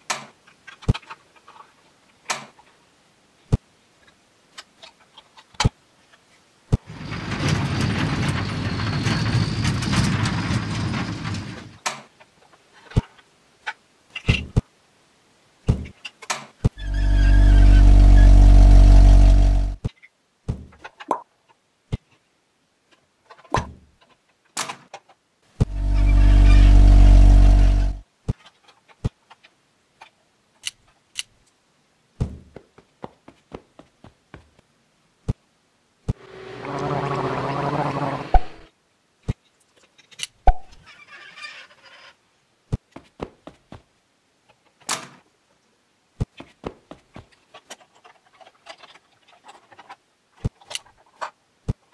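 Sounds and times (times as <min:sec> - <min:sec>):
plastic toy vehicle rolling: 0:06.8 - 0:12.0, 0:47.3 - 0:51.4
loud buzzing hum: 0:16.8 - 0:19.8, 0:25.6 - 0:28.0, 0:36.2 - 0:38.7.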